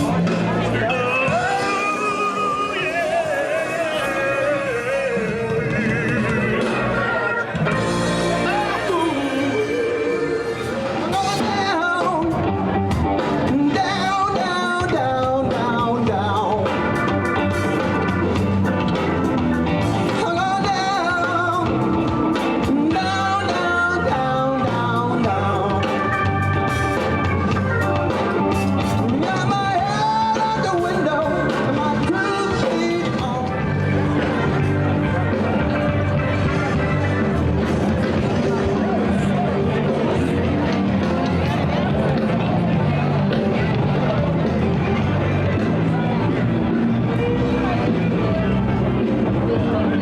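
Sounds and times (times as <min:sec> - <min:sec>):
bass beat: 0:00.0 - 0:02.7, 0:11.0 - 0:50.0
lead singer singing: 0:00.0 - 0:37.0
live band music: 0:00.0 - 0:50.0.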